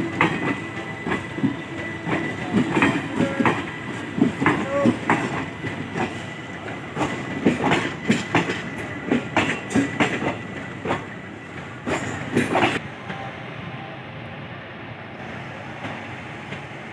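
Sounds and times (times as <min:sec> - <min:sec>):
train wheels clattering over rail joints: 0:00.0 - 0:12.8
train rumble: 0:00.0 - 0:16.9.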